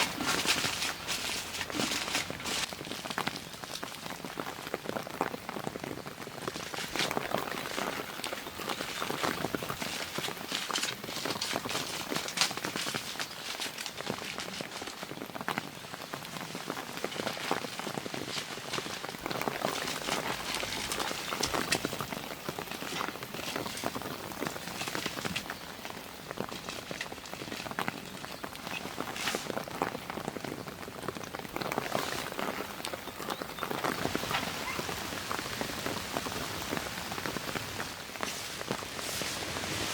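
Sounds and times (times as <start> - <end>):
rain drops striking a surface: 0.0 - 39.9.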